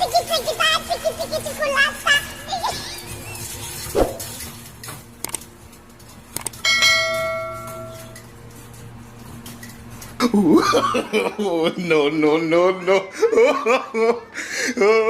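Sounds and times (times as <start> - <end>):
bell-like metallic ring: 6.6 - 8.2.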